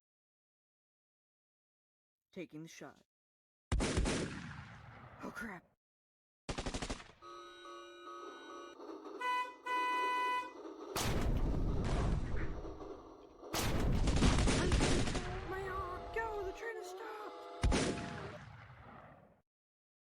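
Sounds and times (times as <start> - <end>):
rapid gunfire: 3.7 - 5.0, 6.5 - 7.2, 11.0 - 16.4, 17.6 - 19.2
train horn tooting: 7.2 - 10.6, 15.6 - 17.6
loud noise blasts: 9.2 - 18.7.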